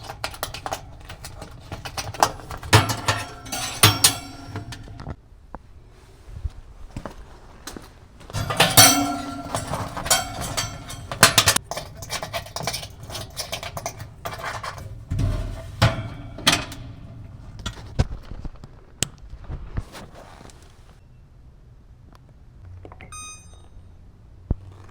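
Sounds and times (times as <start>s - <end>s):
sheet metal parts clattering: 0.0s - 5.2s, 8.2s - 18.4s.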